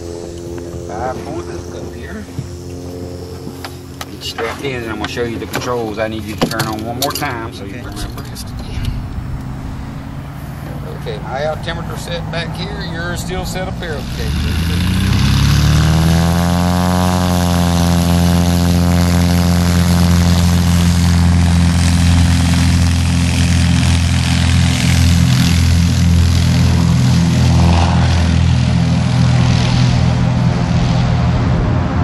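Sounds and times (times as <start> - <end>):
plane piston engine and propeller: 0.0 - 32.0.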